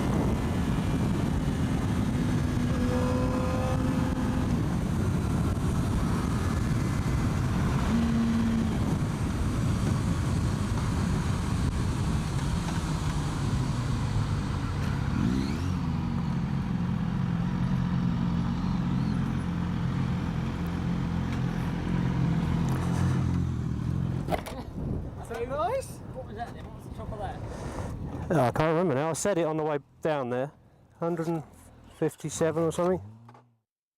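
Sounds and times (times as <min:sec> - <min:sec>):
wind rush: 0:00.0 - 0:13.7, 0:24.6 - 0:28.4
motorcycle engine at full throttle: 0:00.0 - 0:24.5.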